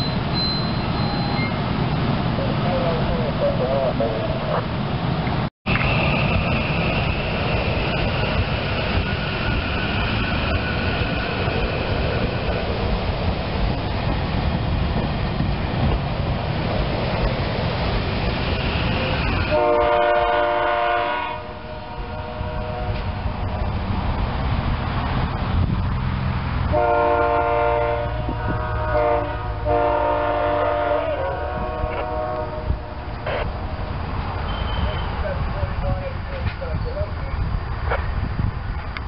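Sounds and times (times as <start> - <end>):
train wheels rumbling on rails: 0.0 - 39.0
train horn blast: 19.3 - 23.3, 26.7 - 33.5.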